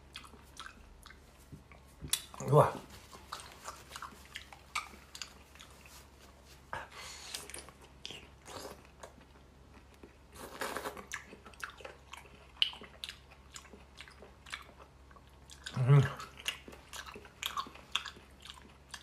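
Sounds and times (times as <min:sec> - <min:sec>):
close biting and chewing: 0:03.1 - 0:06.2, 0:07.3 - 0:19.0.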